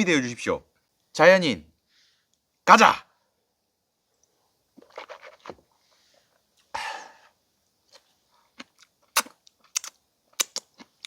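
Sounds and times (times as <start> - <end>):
crisp eating crunches: 4.8 - 5.7, 7.8 - 11.0.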